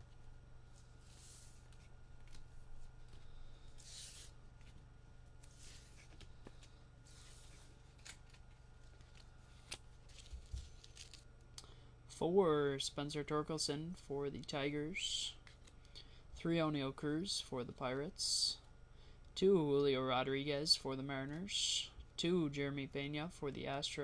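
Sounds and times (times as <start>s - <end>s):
cards sliding against each other: 3.1s - 4.8s, 5.4s - 8.4s.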